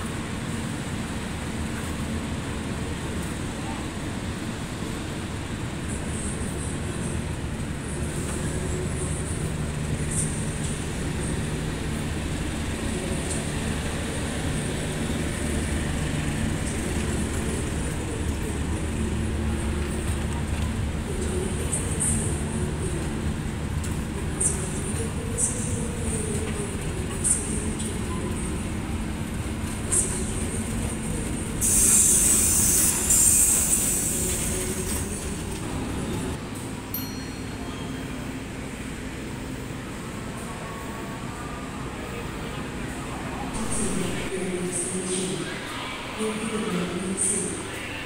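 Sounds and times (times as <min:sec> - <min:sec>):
train low rumble: 0:00.0 - 0:48.0
wheels squealing on rails: 0:29.7 - 0:36.4
hiss: 0:31.6 - 0:34.6.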